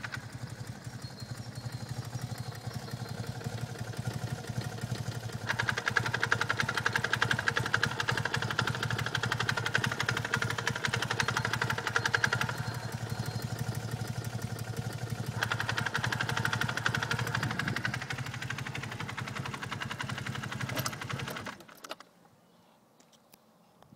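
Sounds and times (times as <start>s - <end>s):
motorcycle engine ticking clatter: 0.0s - 22.1s.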